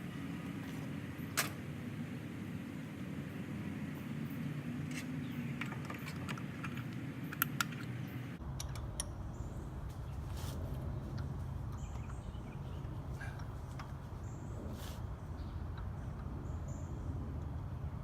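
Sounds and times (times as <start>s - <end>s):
hand tools clicking and clinking: 4.9s - 8.0s.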